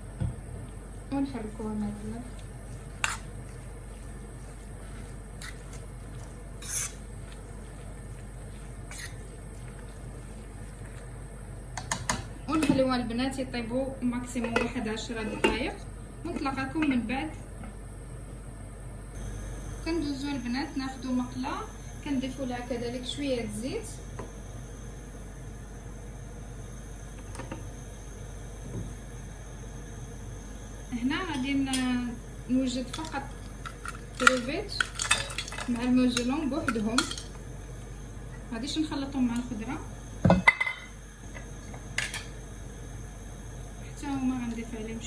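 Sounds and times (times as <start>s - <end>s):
background hum and hiss: 0.0s - 45.0s
vegetables sizzling in a pan: 6.6s - 7.2s, 19.2s - 45.0s.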